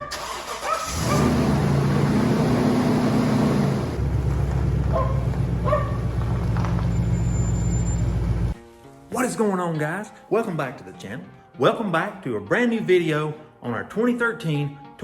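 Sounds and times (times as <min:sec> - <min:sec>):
vehicle engine humming: 0:00.9 - 0:08.6.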